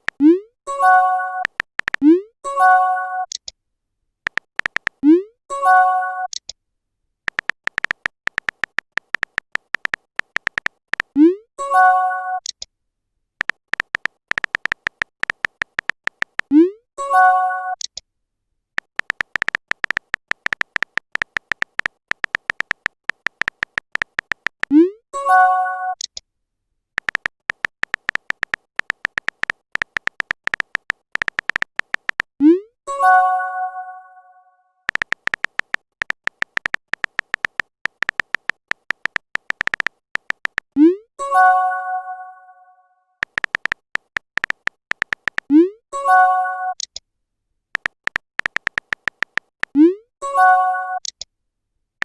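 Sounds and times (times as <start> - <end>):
phone keyboard typing ticks: 0.0 - 3.6, 4.2 - 5.3, 6.2 - 6.6, 7.3 - 11.4, 12.4 - 12.7, 13.4 - 16.8, 17.7 - 18.0, 18.8 - 24.9, 25.9 - 26.2, 27.0 - 32.4, 34.9 - 41.0, 43.2 - 45.7, 46.7 - 47.0, 47.7 - 49.9, 51.0 - 51.3.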